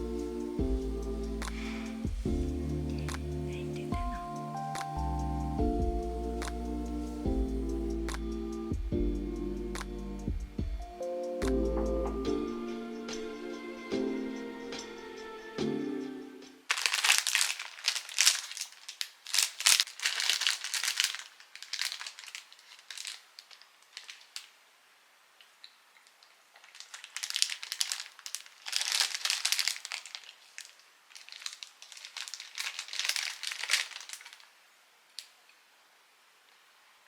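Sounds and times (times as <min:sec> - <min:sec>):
crinkly wrapping crumpled: 0:16.7 - 0:24.6, 0:25.6 - 0:34.6.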